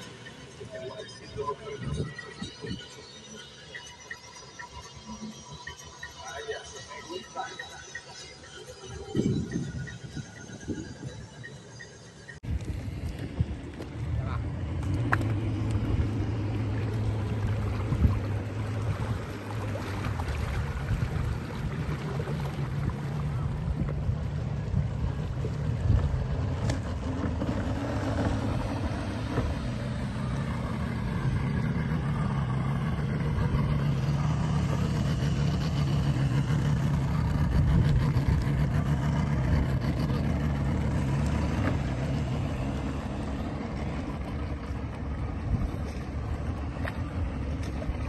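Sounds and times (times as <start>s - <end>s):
motorboat engine running: 0.0s - 48.0s
water noise: 0.0s - 48.0s
wind noise: 8.9s - 11.4s, 12.4s - 32.2s.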